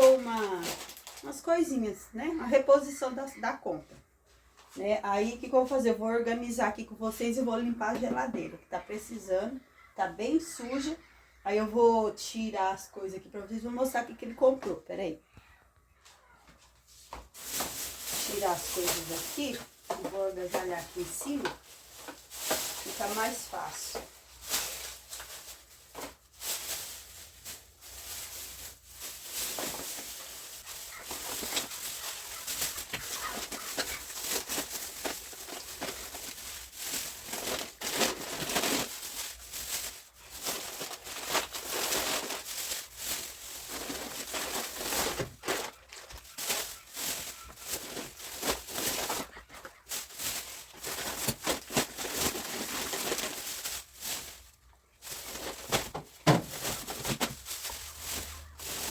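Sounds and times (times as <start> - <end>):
plastic bags rustling: 0.0 - 3.5, 16.7 - 58.9
items knocking and tapping: 55.6 - 57.4.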